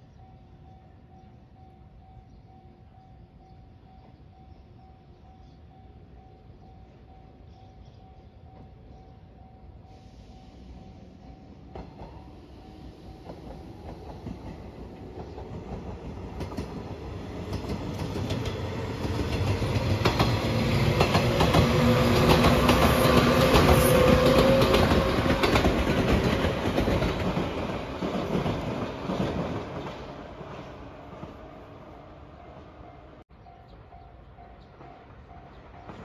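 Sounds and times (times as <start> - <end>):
electric train passing: 0.0 - 36.0
wheels clacking over rail joints: 13.2 - 31.3.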